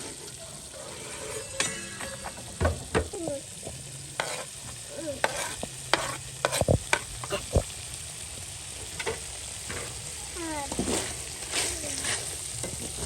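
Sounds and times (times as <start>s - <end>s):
utensil knocking and scraping pot: 0.0s - 7.7s
food sizzling in a pot: 0.0s - 13.0s.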